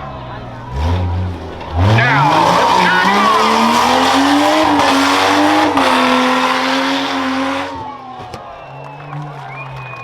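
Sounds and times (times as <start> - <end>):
truck engine revving hard: 0.0 - 7.9.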